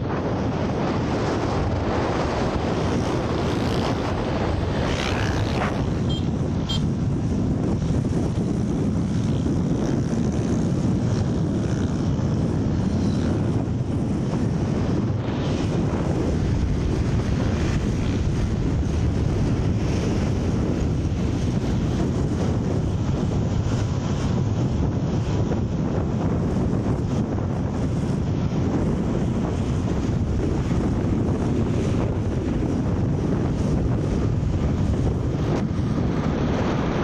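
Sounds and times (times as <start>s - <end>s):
road noise: 0.0s - 37.0s
wind rush on microphone: 0.0s - 37.0s
motorcycle engine running: 1.7s - 15.2s.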